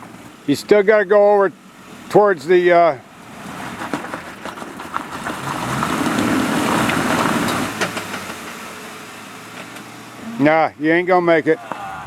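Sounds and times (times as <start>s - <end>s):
engine revving under load: 1.6s - 12.0s
tyres spinning in mud: 3.3s - 8.6s.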